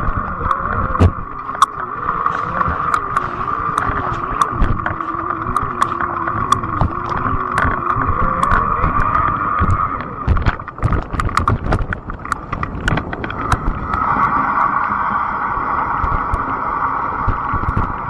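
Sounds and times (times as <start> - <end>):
sharp clicks and rattles: 2.9 - 8.6, 10.5 - 13.6.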